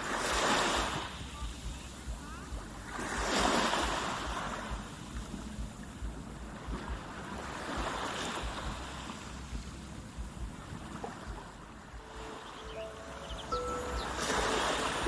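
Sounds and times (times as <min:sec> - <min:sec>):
wind rumbling on microphone: 0:00.0 - 0:12.6
rushing surf: 0:11.9 - 0:15.0.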